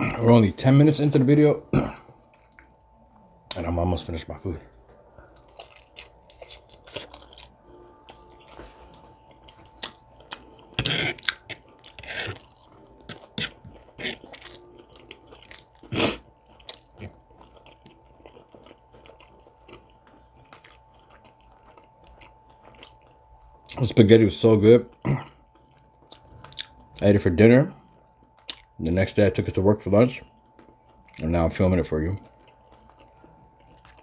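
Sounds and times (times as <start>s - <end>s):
chewing and biting chicken: 5.1s - 23.8s, 25.6s - 27.0s, 32.0s - 34.0s.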